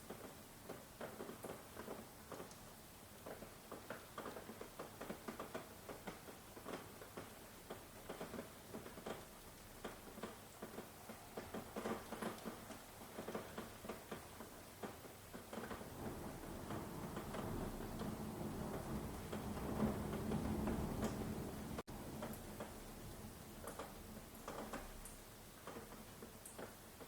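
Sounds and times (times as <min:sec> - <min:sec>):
raindrops pattering: 0:00.0 - 0:27.0
low rumble: 0:15.9 - 0:21.8.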